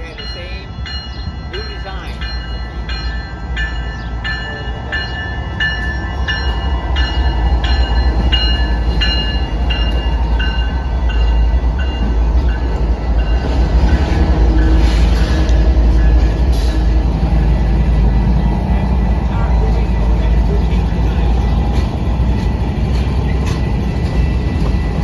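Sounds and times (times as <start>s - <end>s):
bell ringing: 0.0s - 13.6s
freight train low rumble: 0.0s - 25.0s.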